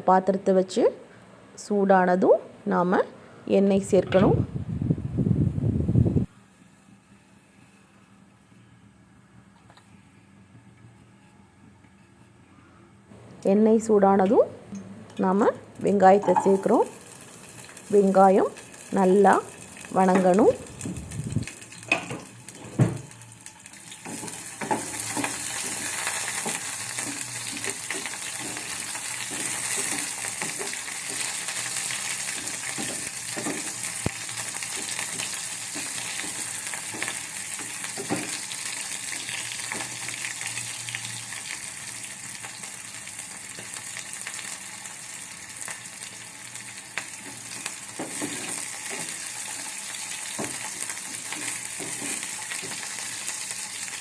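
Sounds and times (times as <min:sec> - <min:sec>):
onions sizzling in hot oil: 0:15.3 - 0:54.0.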